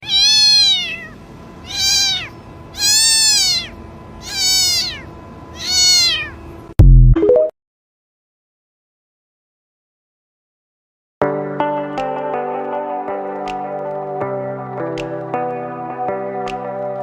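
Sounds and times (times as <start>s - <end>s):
animal meowing: 0.0s - 6.4s.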